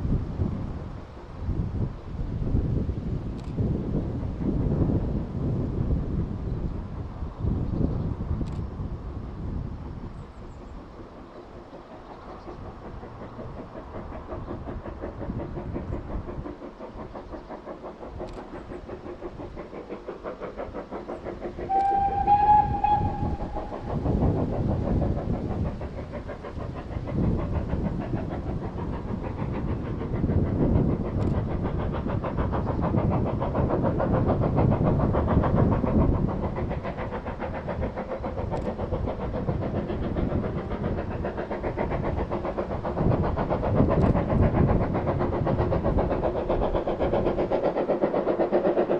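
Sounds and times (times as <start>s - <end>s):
diesel locomotive engine pulsing: 0.0s - 48.9s
locomotive horn: 21.7s - 23.4s.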